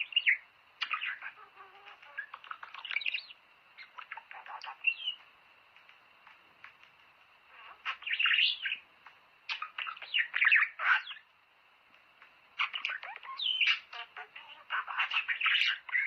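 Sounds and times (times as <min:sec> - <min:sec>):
budgerigars chattering and warbling: 0:00.0 - 0:05.2, 0:07.5 - 0:08.8, 0:09.5 - 0:11.3, 0:12.6 - 0:16.0.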